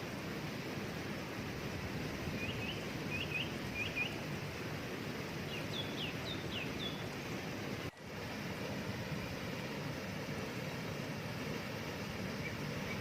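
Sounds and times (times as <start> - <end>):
waterfall rushing: 0.0 - 13.0
small bird singing: 2.4 - 4.2, 5.5 - 7.2, 12.3 - 13.0.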